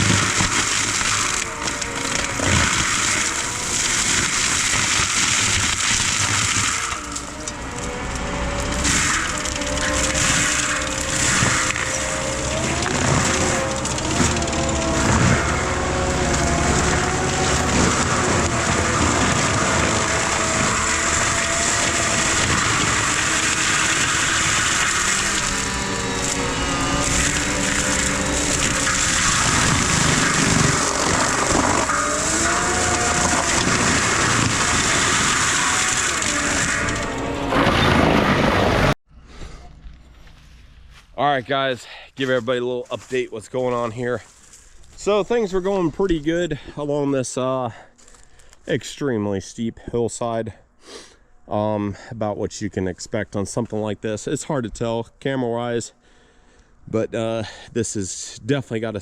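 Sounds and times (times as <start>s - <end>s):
mulcher grinding wood: 0.0s - 39.0s
rising whine: 0.0s - 39.0s
heavy diesel machinery running: 6.4s - 39.0s.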